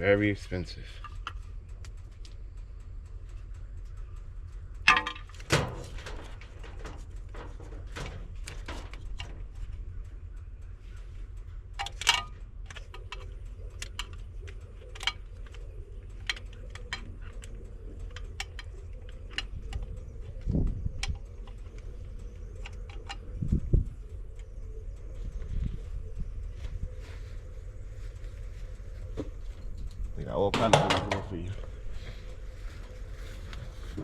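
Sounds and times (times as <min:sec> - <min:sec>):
steady low hum: 0:00.0 - 0:34.0
metallic clicks and clinks of tools: 0:11.8 - 0:23.4.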